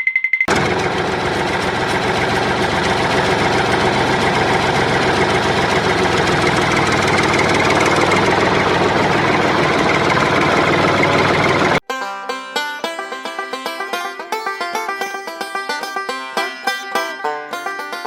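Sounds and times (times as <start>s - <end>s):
tractor engine idling: 0.5s - 11.8s.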